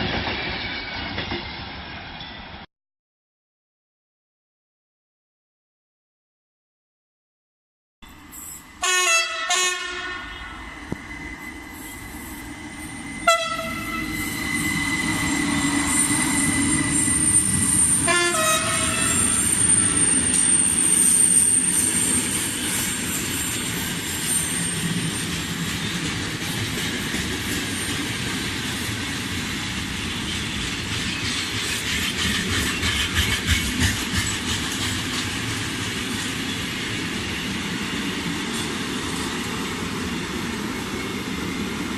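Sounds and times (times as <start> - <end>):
high wheel squeal: 8.0 - 8.8, 10.2 - 26.7
passing train rumble: 8.1 - 41.9
train horn blasts: 8.8 - 10.6, 13.2 - 14.3, 18.0 - 19.4.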